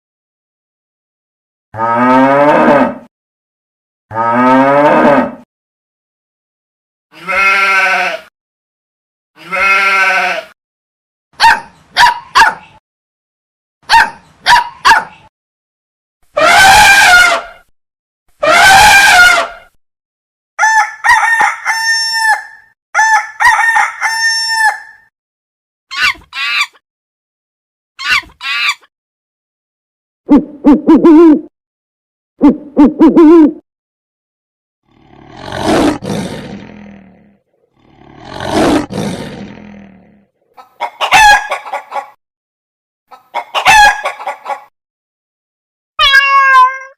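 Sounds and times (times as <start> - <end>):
cow mooing: 1.8 - 3.1, 4.1 - 5.4, 7.2 - 8.2, 9.4 - 10.4, 34.9 - 40.2
bleating: 7.1 - 8.3, 9.4 - 10.6, 16.4 - 17.5, 18.4 - 19.6, 46.0 - 46.9
farmyard fowl calls: 18.4 - 19.6, 20.6 - 25.0, 40.6 - 42.2, 43.1 - 44.7.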